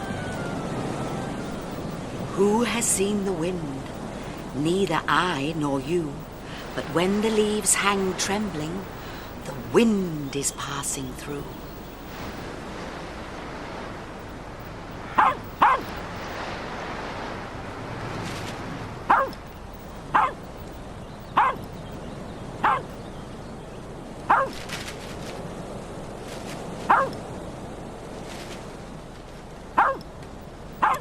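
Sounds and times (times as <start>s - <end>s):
wind rushing: 0.0s - 10.4s
dog barking: 15.2s - 15.9s, 19.1s - 19.4s, 20.2s - 20.4s, 21.4s - 21.6s, 22.6s - 22.9s, 24.3s - 24.6s, 26.9s - 27.2s, 29.8s - 30.0s, 30.8s - 31.0s.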